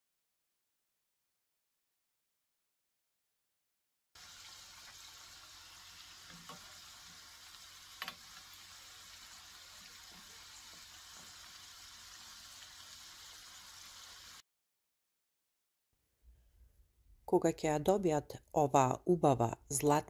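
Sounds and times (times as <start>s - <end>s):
dough deep-frying in oil: 4.2s - 14.4s.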